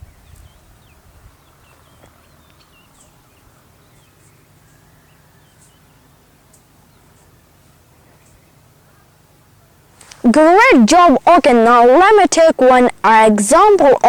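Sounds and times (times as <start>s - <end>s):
birds chirping faintly: 0.0s - 14.0s
low steady hum: 0.0s - 14.0s.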